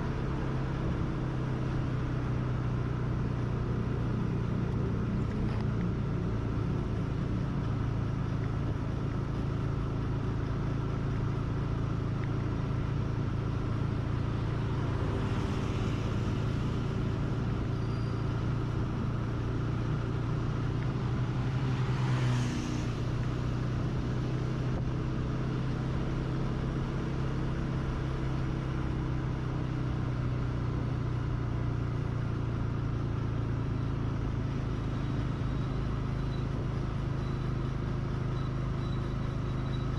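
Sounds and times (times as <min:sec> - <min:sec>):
road and wind noise: 0:00.0 - 0:39.9
vehicle engine running: 0:00.0 - 0:39.9
vehicle swishing past: 0:14.4 - 0:17.1, 0:21.0 - 0:23.2.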